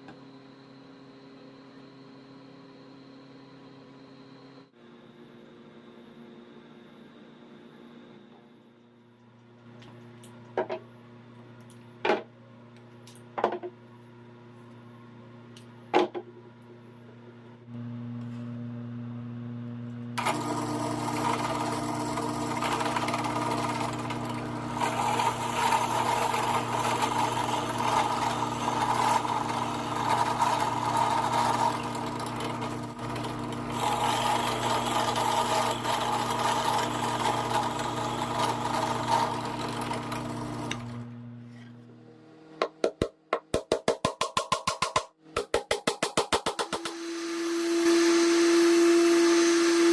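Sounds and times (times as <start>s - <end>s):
power tool loud whir: 20.1s - 41.7s, 46.7s - 49.9s
power tool humming: 20.2s - 41.3s, 46.6s - 49.9s.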